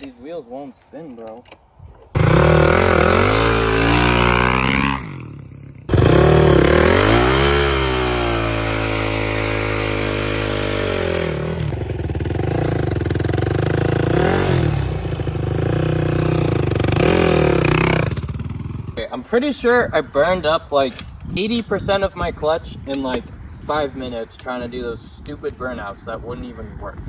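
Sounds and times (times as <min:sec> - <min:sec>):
dirt bike engine revving: 0:02.2 - 0:19.0.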